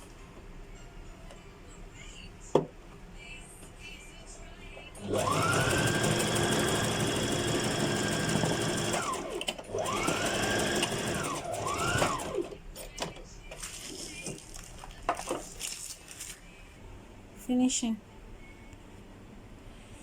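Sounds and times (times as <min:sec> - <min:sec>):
sewing machine stitching: 0:05.0 - 0:12.6.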